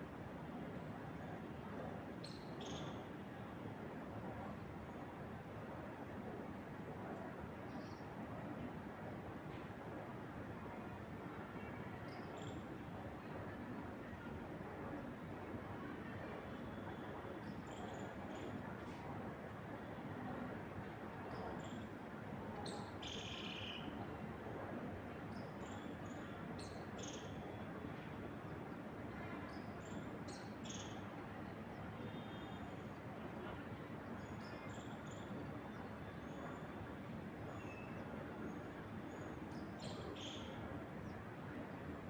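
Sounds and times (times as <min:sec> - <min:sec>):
wind through trees: 0:12.3 - 0:42.0.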